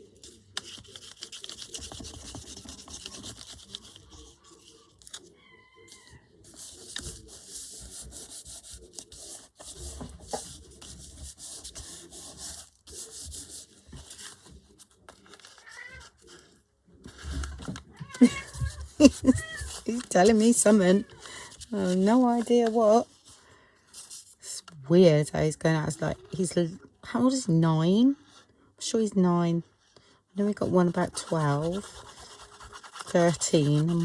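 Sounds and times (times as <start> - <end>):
paper rubbing by hand: 0.6 - 5.2, 6.4 - 14.5, 18.4 - 24.3, 30.9 - 34.0.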